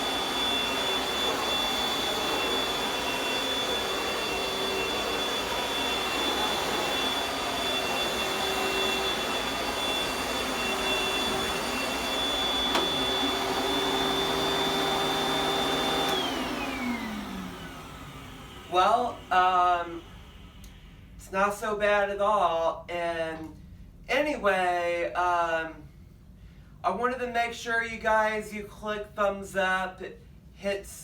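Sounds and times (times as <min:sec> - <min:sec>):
vacuum cleaner whining: 0:00.0 - 0:20.8.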